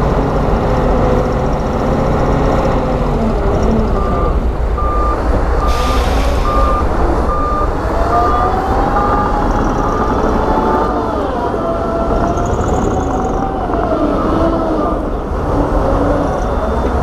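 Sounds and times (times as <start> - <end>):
diesel engine rumble: 0.0 - 17.0
rising whine: 1.2 - 17.0
reversing alarm beeping: 3.9 - 11.3, 16.0 - 17.0
short hiss: 5.7 - 6.6.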